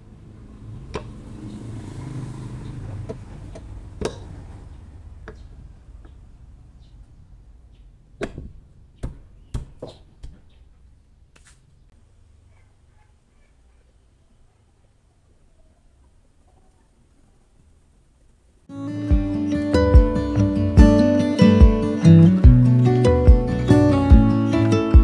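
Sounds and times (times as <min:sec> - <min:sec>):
clicks and sharp knocks: 0:03.0 - 0:06.3, 0:07.0 - 0:11.6.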